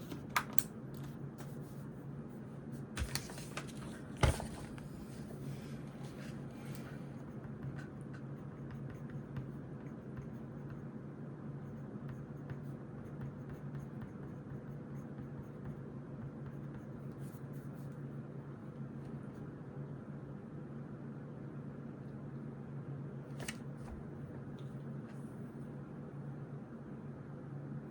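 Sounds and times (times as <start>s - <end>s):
pencil scratching on paper: 6.1s - 10.9s, 11.6s - 17.9s.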